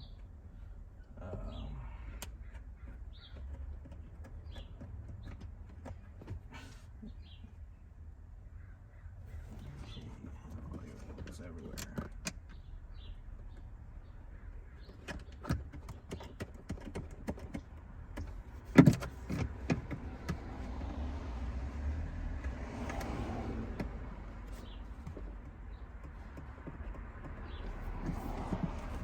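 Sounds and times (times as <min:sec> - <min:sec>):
small clicks and knocks of parts: 0:02.2 - 0:06.4.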